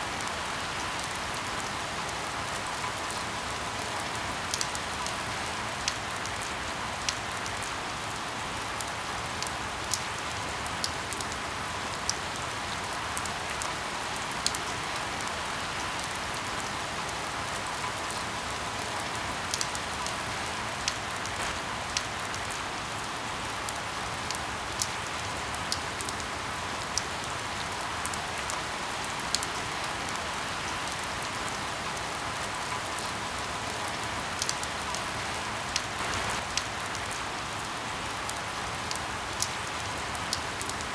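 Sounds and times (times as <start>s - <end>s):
rain hiss: 0.0s - 40.9s
firewood crackling: 36.0s - 37.0s.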